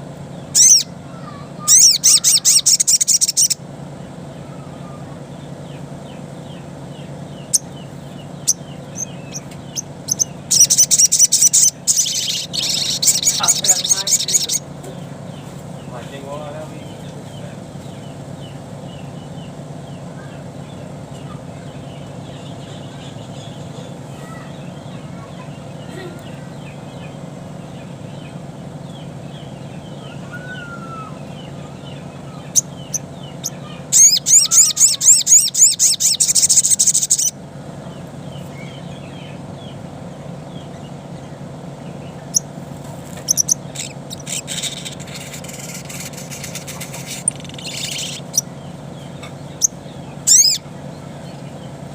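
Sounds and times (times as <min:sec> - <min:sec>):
high bird trill: 0:00.0 - 0:51.9
steady low hum: 0:00.0 - 0:51.9
bird chirps: 0:00.2 - 0:51.9
sharp short bird calls: 0:00.4 - 0:03.6, 0:07.4 - 0:14.7, 0:30.0 - 0:37.3, 0:43.1 - 0:50.7.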